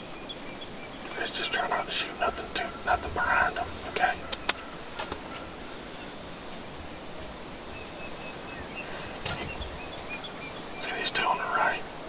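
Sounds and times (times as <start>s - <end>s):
outdoor ambient hiss: 0.0s - 12.0s
sharp clicks: 4.3s - 5.3s.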